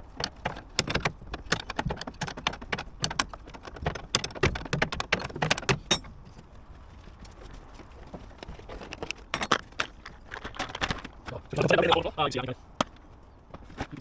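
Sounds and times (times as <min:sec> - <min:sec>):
hand tools clicking and clinking: 0:00.1 - 0:06.2, 0:08.7 - 0:11.3.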